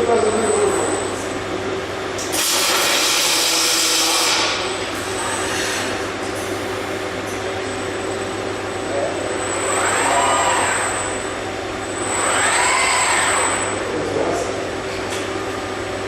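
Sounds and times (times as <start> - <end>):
steady hum of welding cell: 0.0 - 16.0
robot servo drives whining: 9.5 - 11.3, 11.9 - 13.8.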